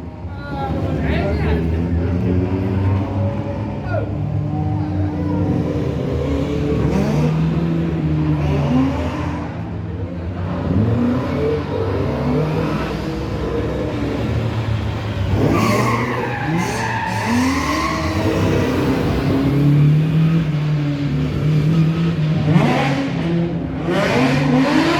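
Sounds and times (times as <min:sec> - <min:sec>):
rally car engine revving: 0:00.1 - 0:24.9
tyres squealing and skidding: 0:10.7 - 0:20.8.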